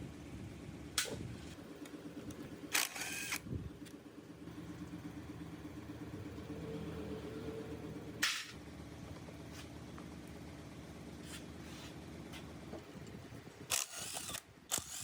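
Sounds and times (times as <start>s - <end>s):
small gasoline engine running: 1.2s - 9.2s, 13.7s - 15.0s.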